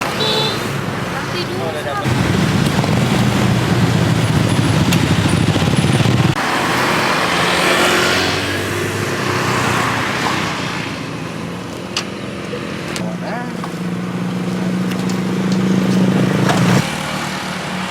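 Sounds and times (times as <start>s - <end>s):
vehicle passing with a rush: 0.0s - 17.9s
vehicle engine running: 1.4s - 6.6s.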